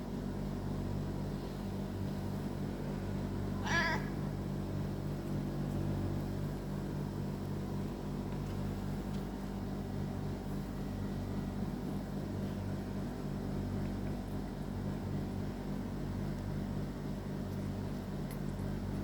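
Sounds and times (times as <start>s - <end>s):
low mechanical hum: 0.0s - 19.0s
cat meowing: 3.6s - 4.2s.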